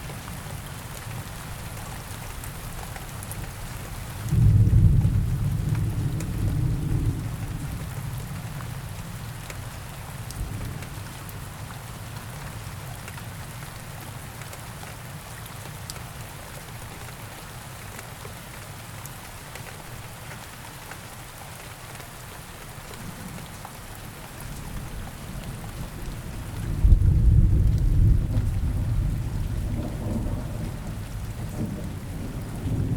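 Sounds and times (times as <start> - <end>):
steady rain hiss: 0.0 - 32.9
low thunder rumble: 4.3 - 7.8, 25.2 - 32.9.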